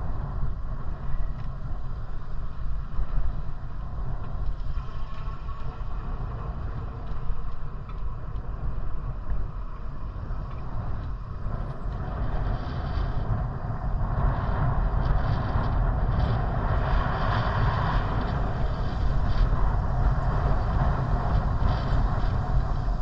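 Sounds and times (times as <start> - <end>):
wind and road noise: 0.0 - 23.0.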